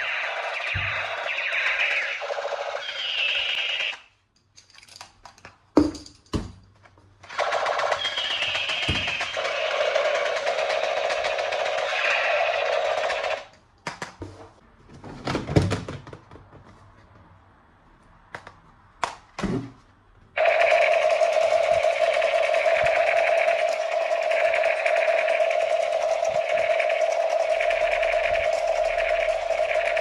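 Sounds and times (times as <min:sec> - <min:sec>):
toy gun electric buzz: 0:00.0 - 0:04.0, 0:07.4 - 0:13.4, 0:20.4 - 0:30.0.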